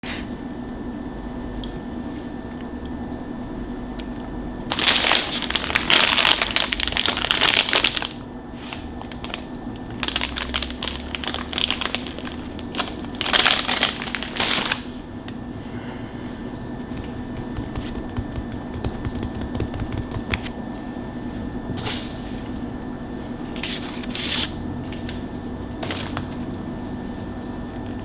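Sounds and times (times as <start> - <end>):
faint steady hum: 0.0 - 28.0
crinkly packaging crumpled: 4.7 - 15.4, 23.5 - 27.1.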